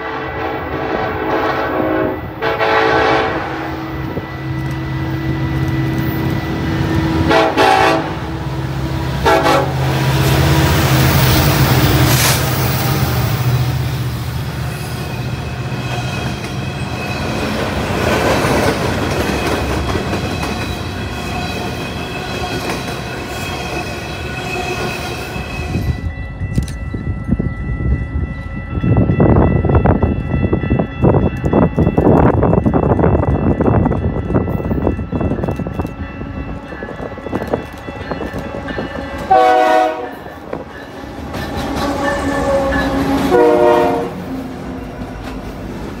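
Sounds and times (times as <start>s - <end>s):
train horn blasts: 0.0s - 11.0s, 38.3s - 44.4s
train rumble and rail clatter: 0.0s - 46.0s.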